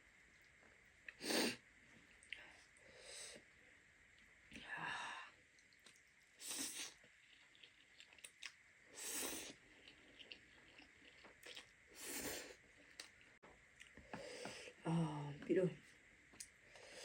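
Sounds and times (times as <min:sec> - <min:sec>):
person chewing: 0:05.6 - 0:14.1.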